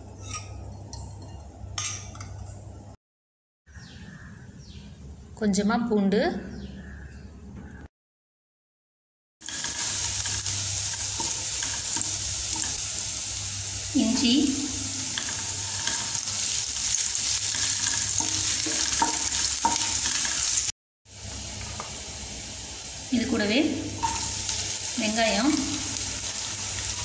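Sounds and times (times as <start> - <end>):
garlic sizzling in hot oil: 9.4 - 27.0.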